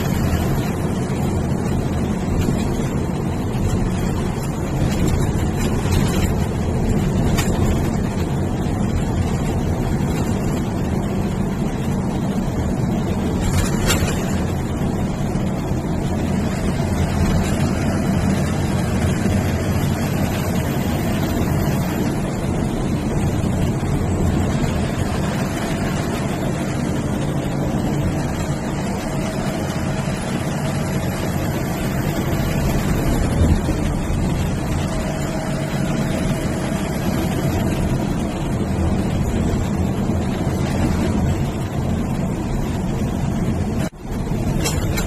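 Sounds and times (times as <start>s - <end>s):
bus diesel engine: 0.0s - 45.0s.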